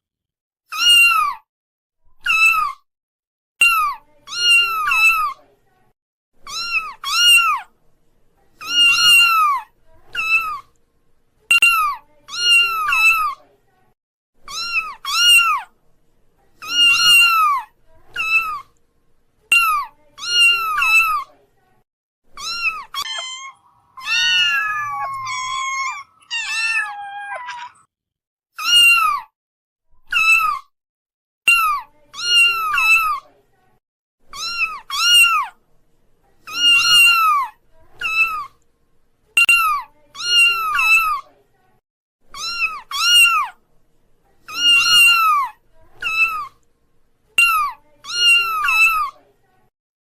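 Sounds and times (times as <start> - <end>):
kittens mewing: 6.5 - 7.7, 8.6 - 10.7, 16.6 - 18.7, 22.4 - 27.9, 34.3 - 35.6, 42.3 - 43.6, 44.5 - 46.6.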